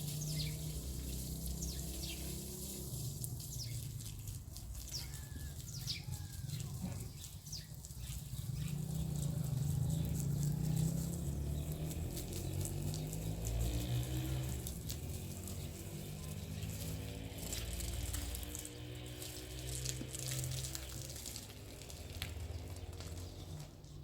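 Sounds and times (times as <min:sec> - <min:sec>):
birds chirping: 0:00.0 - 0:24.0
light ticks and patter: 0:14.4 - 0:24.0.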